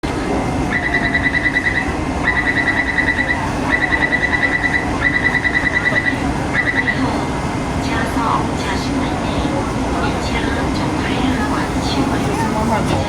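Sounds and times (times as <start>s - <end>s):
low train hum: 0.0s - 13.0s
rapid high-pitched door warning beeps: 0.8s - 7.0s.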